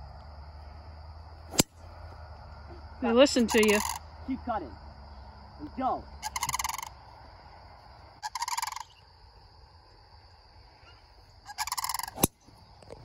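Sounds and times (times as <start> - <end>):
bird rattling call: 6.2 - 6.9, 8.2 - 9.0, 11.5 - 12.2.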